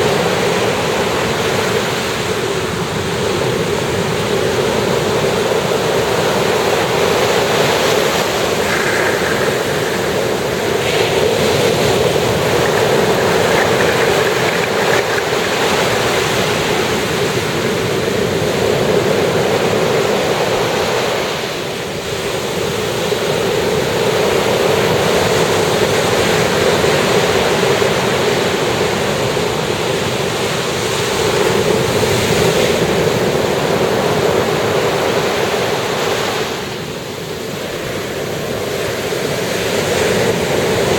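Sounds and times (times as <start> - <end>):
waves breaking on beach: 0.0 - 22.3.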